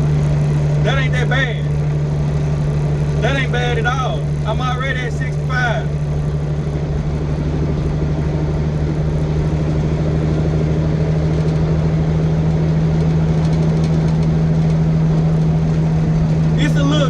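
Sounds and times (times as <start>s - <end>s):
truck diesel engine cruising: 0.0s - 17.0s.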